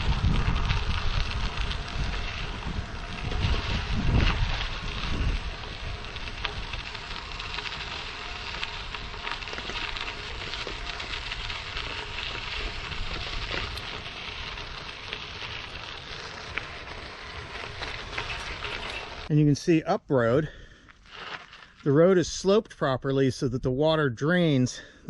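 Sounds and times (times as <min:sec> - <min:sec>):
wind rumble on microphone: 0:00.0 - 0:16.5
bicycle tyres crunching on gravel: 0:00.0 - 0:23.0.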